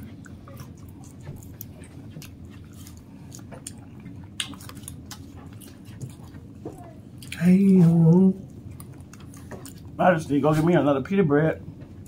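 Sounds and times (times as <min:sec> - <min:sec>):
low background hum: 0:00.0 - 0:12.0
people chewing food: 0:00.0 - 0:12.0.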